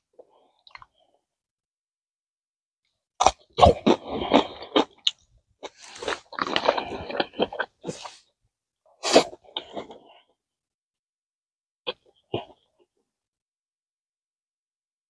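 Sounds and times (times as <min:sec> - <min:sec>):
person chewing food: 0:00.2 - 0:01.0, 0:03.2 - 0:08.3, 0:09.2 - 0:10.3.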